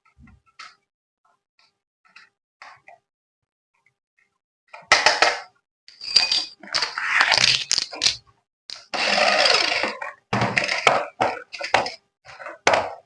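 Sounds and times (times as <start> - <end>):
toy parts clicking and clattering: 5.9 - 8.9.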